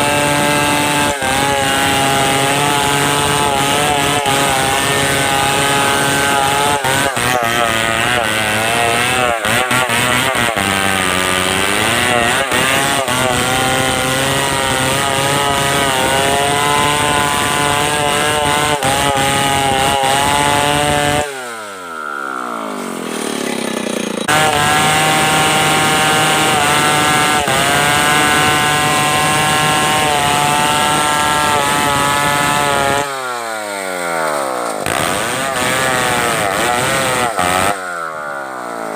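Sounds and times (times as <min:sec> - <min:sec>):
chainsaw cutting timber: 0:00.0 - 0:38.9.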